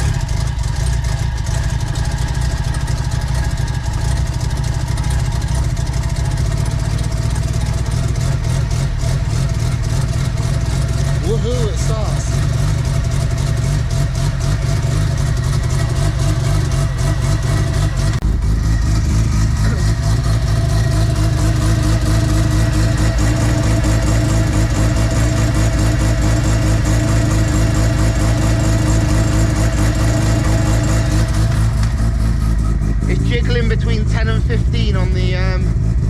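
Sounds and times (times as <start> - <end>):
rotary engine choppy idle: 0.0 - 36.0.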